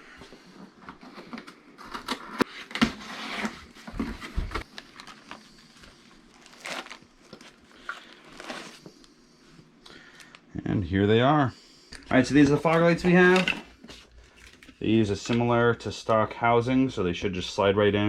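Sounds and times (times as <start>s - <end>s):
packaging crinkling and tearing: 1.8s - 8.9s.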